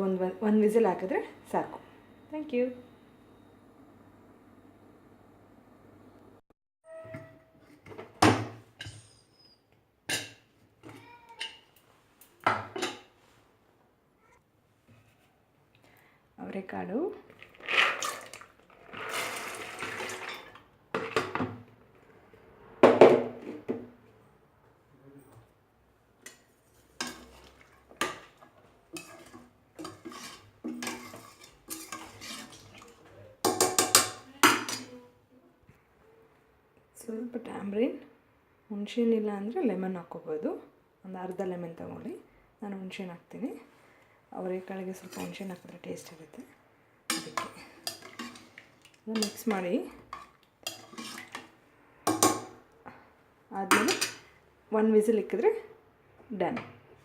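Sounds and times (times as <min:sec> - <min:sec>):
metal cookware clanking: 0:08.8 - 0:09.3, 0:12.5 - 0:13.1, 0:19.1 - 0:21.4, 0:26.2 - 0:35.0, 0:44.9 - 0:45.6, 0:47.1 - 0:52.6, 0:53.6 - 0:54.3
metal spoon scraping a pot: 0:26.3 - 0:34.9, 0:44.9 - 0:45.8, 0:47.1 - 0:52.6.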